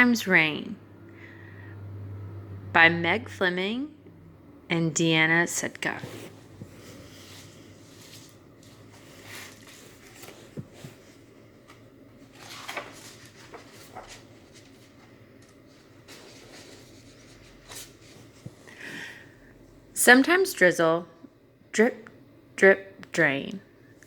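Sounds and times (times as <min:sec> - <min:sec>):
room hum: 0:00.0 - 0:24.0
paper pages rustling: 0:05.9 - 0:18.7.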